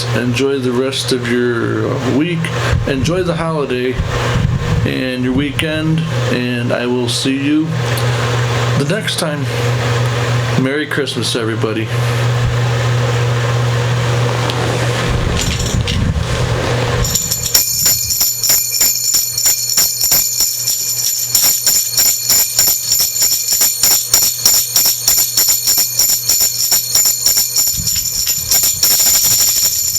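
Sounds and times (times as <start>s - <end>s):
steady low hum: 0.0s - 10.6s, 11.5s - 29.9s
sleigh bells jingling: 17.0s - 29.9s.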